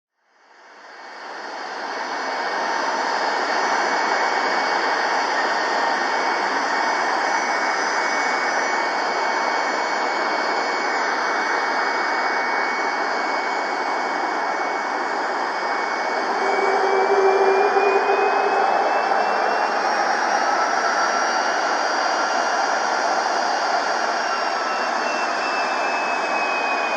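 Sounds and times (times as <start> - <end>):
high whine rising in pitch: 0.8 - 26.9
jet engines running: 4.8 - 26.9.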